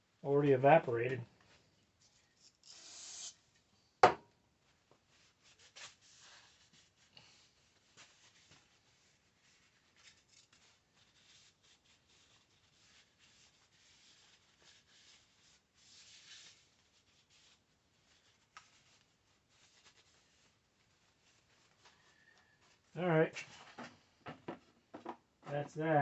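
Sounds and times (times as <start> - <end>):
rubbing and scratching of small part: 7.8 - 21.9.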